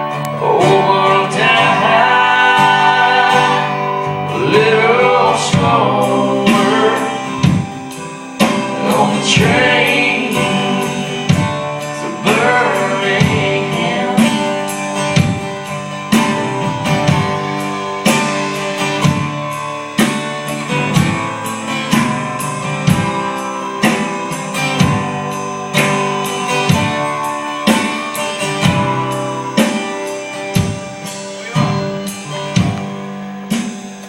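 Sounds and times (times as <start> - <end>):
person singing: 0.0 - 14.9, 30.9 - 33.2
guitar strumming chords: 0.0 - 34.0.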